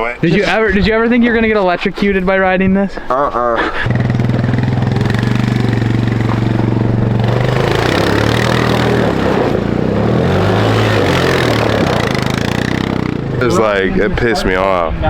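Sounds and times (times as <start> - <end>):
go-kart engine revving: 3.8 - 14.1.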